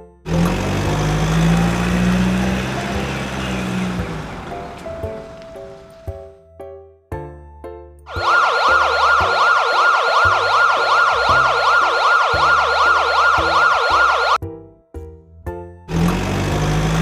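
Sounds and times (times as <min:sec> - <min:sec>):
electronic siren warbling: 0:08.1 - 0:14.4
music bass line: 0:08.1 - 0:14.8.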